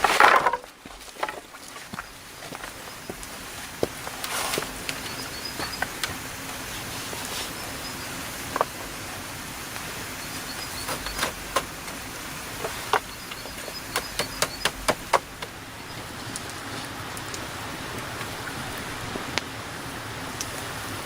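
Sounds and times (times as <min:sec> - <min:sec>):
faint outdoor ambience buzz: 0:00.0 - 0:21.0
hand tool striking wood: 0:10.8 - 0:12.0, 0:12.6 - 0:15.5.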